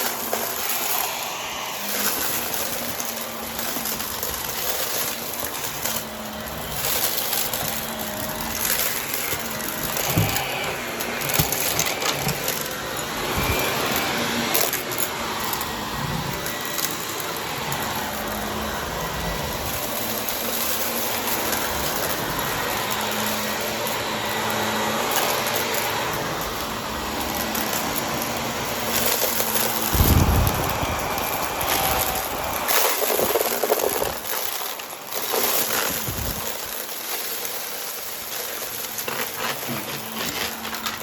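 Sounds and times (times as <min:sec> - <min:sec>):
vacuum cleaner running: 0:00.0 - 0:41.0
debris clicking and crackling: 0:27.3 - 0:41.0.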